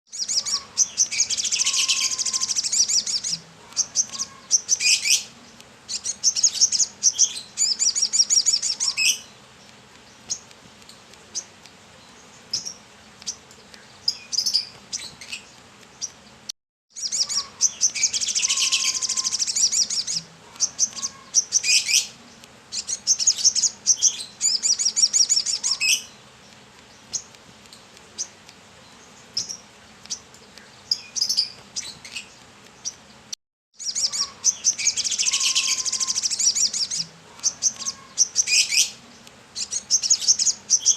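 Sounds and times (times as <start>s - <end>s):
bird singing chirping trills: 0.1s - 40.9s.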